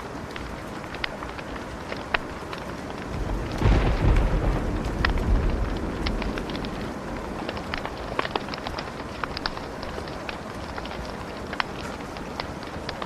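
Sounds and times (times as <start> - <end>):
steady hiss: 0.0 - 13.0
thunder rumbling: 0.0 - 13.0
wood fire crackling and popping: 0.0 - 13.0.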